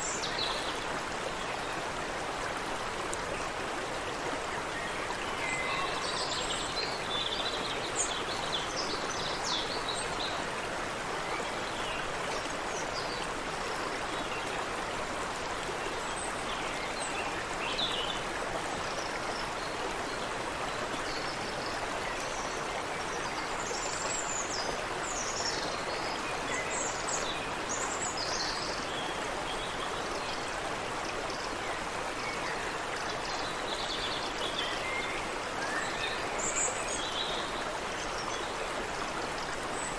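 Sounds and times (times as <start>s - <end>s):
water rushing in a creek: 0.0s - 39.9s.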